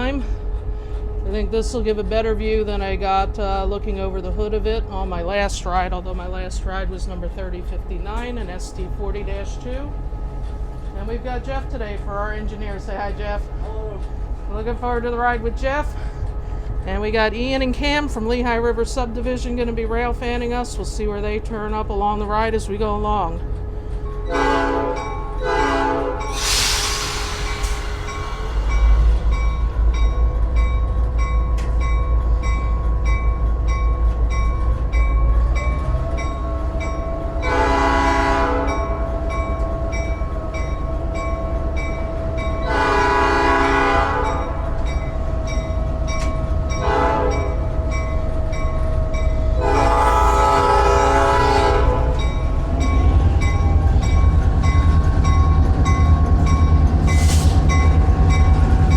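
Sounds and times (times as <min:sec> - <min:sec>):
diesel locomotive engine running: 0:00.0 - 0:58.9
locomotive horn blasts: 0:24.3 - 0:26.5, 0:37.2 - 0:39.3, 0:42.4 - 0:44.6, 0:46.8 - 0:47.6, 0:49.6 - 0:52.3
air hiss: 0:26.3 - 0:29.0.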